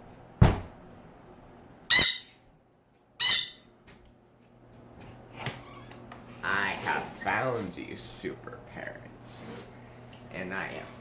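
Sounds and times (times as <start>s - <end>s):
knock on a door: 0.4s - 0.8s
parrot squawking: 1.9s - 2.4s, 3.2s - 3.7s.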